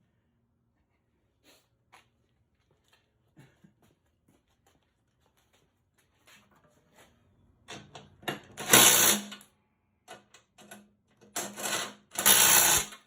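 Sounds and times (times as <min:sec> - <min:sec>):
tool tightening bolts clicking: 0:10.1 - 0:13.0.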